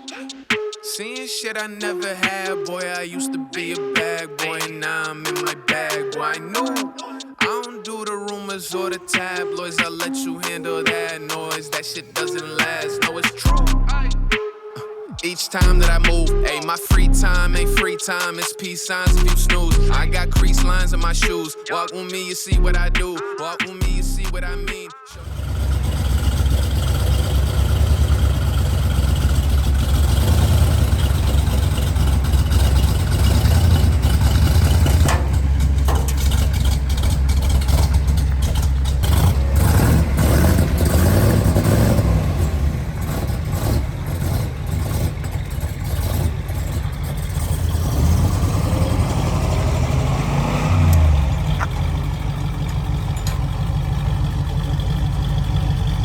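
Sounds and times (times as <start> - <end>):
vehicle engine rumbling: 11.8 - 14.4, 15.3 - 17.9, 19.1 - 21.4, 22.5 - 23.2, 23.8 - 56.0.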